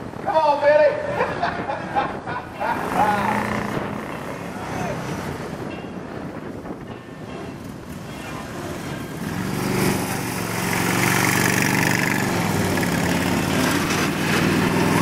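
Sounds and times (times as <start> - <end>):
motorcycle engine running: 2.8 - 4.5, 8.8 - 15.0.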